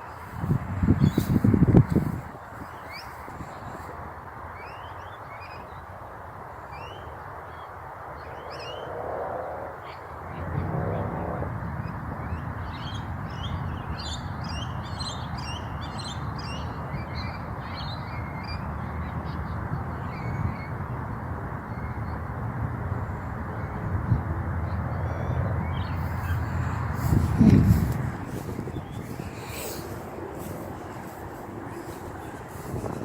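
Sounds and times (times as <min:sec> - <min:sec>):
birds chirping: 0:00.0 - 0:04.0, 0:25.1 - 0:33.0.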